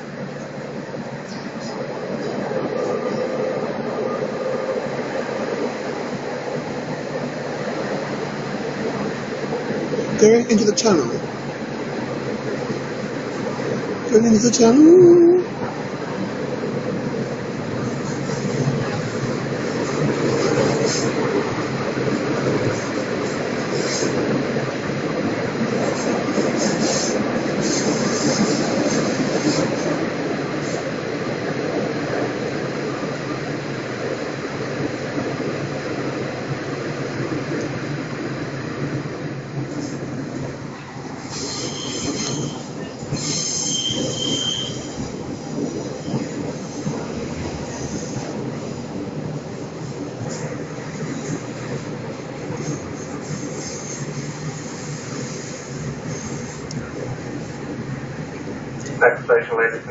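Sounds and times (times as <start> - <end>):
train wheels rumbling on rails: 0.0 - 59.9
train wheels squealing: 41.2 - 46.8, 52.6 - 56.6
high-pitched wheel squeal: 41.4 - 45.0.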